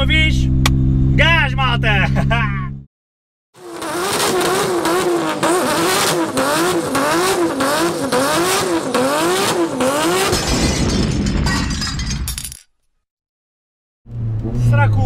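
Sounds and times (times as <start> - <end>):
car engine revving: 3.6 - 10.4.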